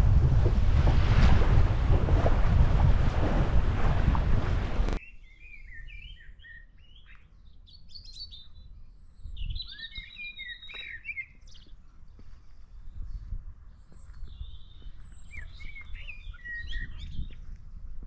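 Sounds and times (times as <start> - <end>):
faint low wind rumble: 0.0 - 5.0, 11.5 - 18.0
wind and water noise: 0.0 - 5.0, 12.2 - 18.0
small birds chirping and singing: 5.0 - 17.6.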